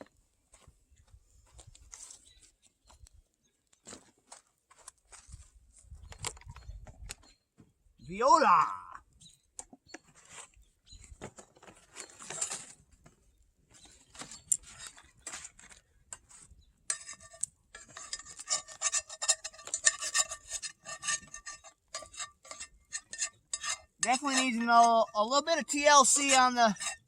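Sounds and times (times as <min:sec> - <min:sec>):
metal utensil scraping a pan: 0:12.0 - 0:12.8, 0:16.8 - 0:27.0.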